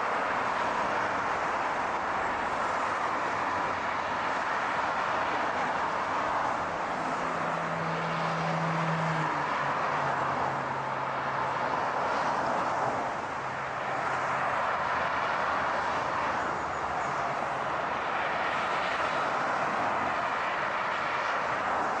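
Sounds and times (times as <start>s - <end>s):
car road and tyre noise: 0.0s - 22.0s.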